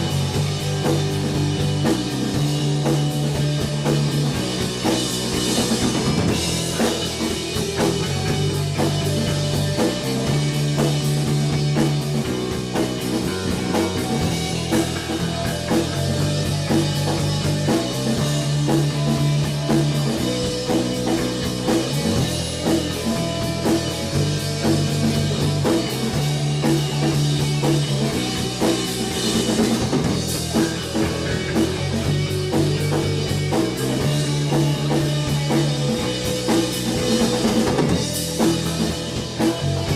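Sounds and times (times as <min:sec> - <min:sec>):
drum kit: 0:00.0 - 0:39.9
guitar: 0:00.0 - 0:39.9
low repeating bass line: 0:00.0 - 0:39.9
rock band playing live: 0:00.0 - 0:39.9.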